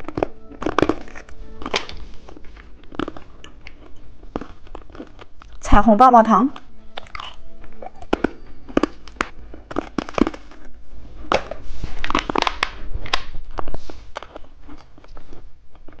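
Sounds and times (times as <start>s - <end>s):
lollipop crunching: 0.0s - 5.6s, 6.5s - 16.0s.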